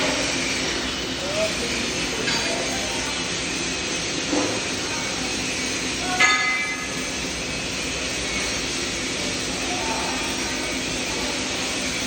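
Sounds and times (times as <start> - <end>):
welding hiss: 0.0 - 12.0.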